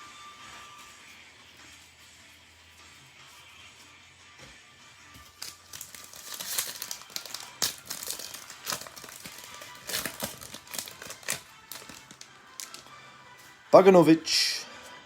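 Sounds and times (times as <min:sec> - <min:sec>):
faint background music: 0:00.0 - 0:15.0
foil wrapper crinkling: 0:05.2 - 0:13.5.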